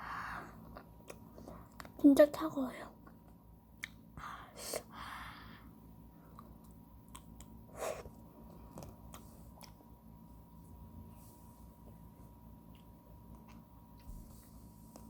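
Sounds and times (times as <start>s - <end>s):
mouth and lip eating noises: 6.3s - 8.2s.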